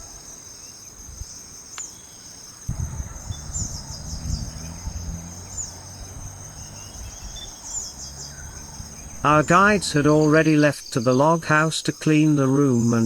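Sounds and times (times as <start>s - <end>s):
crickets trilling: 0.0s - 13.0s
low rumble: 2.7s - 10.2s.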